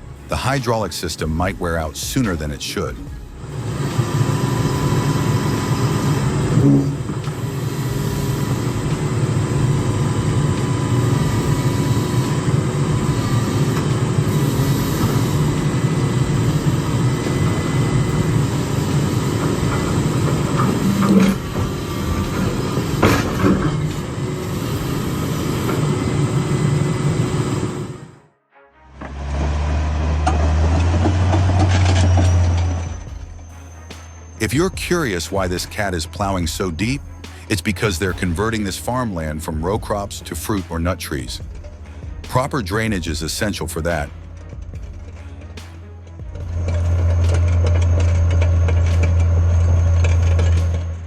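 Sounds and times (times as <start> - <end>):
thin steady whine: 0.0 - 28.2, 46.2 - 51.0
diesel engine running under load: 3.0 - 28.2, 29.0 - 51.0.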